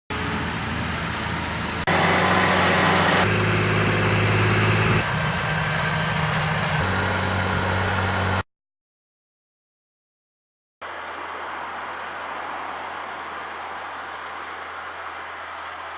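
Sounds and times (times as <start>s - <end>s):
tractor diesel engine running: 0.1s - 8.4s.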